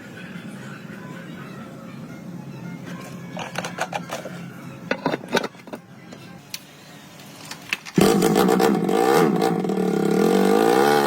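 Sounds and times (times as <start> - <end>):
motorcycle engine running: 8.0 - 11.0.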